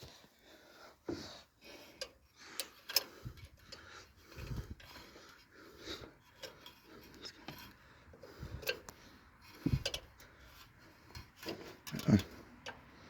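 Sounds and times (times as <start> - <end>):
light metallic clicks and taps: 9.6 - 12.9.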